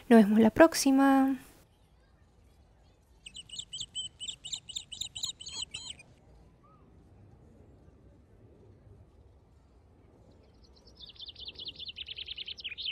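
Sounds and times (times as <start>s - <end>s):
faint outdoor background noise: 0.0s - 12.9s
bird sharp chirps: 3.2s - 6.1s, 11.0s - 12.9s.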